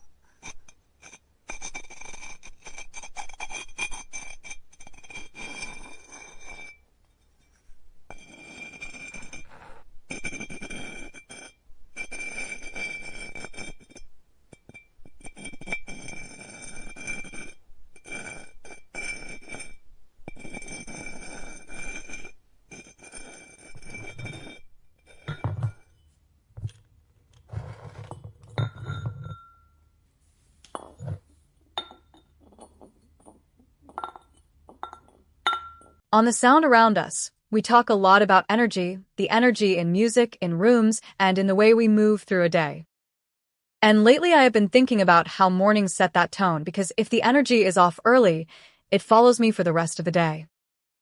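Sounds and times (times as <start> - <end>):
ceramic clinks: 24.0 - 26.1, 28.1 - 29.8, 30.7 - 31.2, 31.8 - 33.3, 33.9 - 36.0
wet clay rubbing: 26.6 - 28.4.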